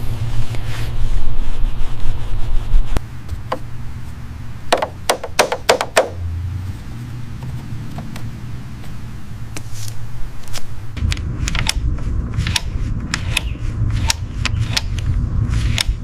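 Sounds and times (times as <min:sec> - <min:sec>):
low steady rumble: 0:00.0 - 0:16.0
sharp knocks: 0:04.7 - 0:06.2.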